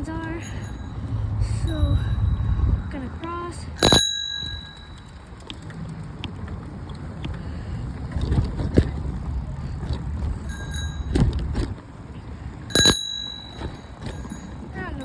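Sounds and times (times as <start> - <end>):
wind on phone microphone: 0.0 - 4.8, 6.7 - 11.8
bicycle bell ring: 0.0 - 5.9, 10.2 - 11.8, 12.4 - 15.0
bicycle tyres rumbling: 0.0 - 15.0
bike knocks and rattles: 2.4 - 15.0.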